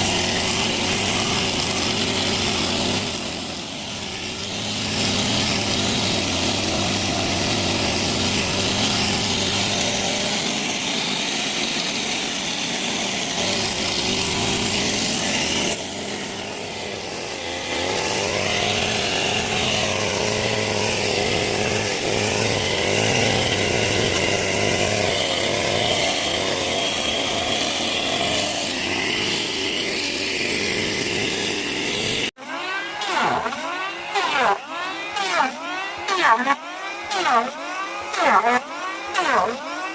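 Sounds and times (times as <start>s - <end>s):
chainsaw cutting wood: 0.0s - 39.9s
sound rising and falling in pitch: 32.4s - 39.9s.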